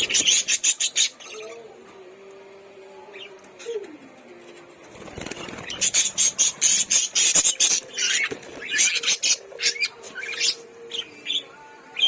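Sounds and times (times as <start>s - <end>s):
lovebirds chattering: 0.0s - 1.8s, 5.1s - 12.0s.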